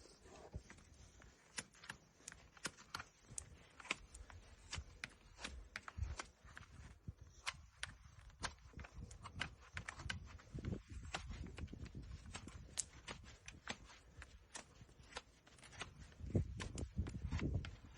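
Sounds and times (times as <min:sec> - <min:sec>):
hoof trimming clicks and snips: 0:00.1 - 0:17.9.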